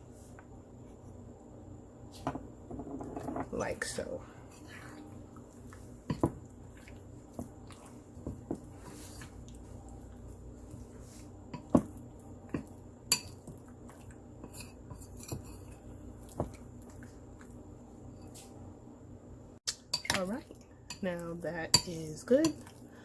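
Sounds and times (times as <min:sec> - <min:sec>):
utensil clinking against bowl: 0:20.9 - 0:22.7.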